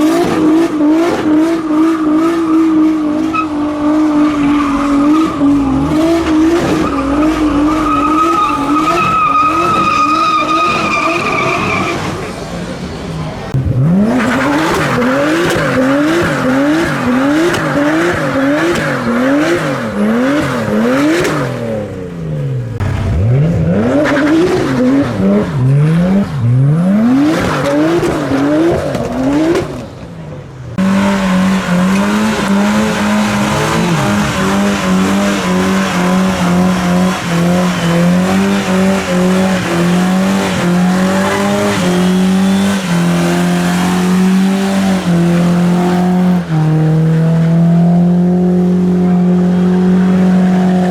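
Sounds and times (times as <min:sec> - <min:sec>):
car engine revving: 0:00.0 - 0:50.9
tyres squealing: 0:02.3 - 0:12.3.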